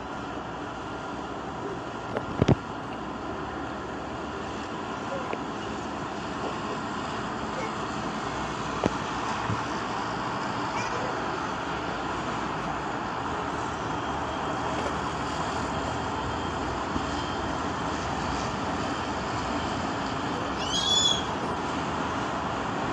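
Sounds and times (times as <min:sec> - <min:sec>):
car wash rushing noise: 0:00.0 - 0:22.9.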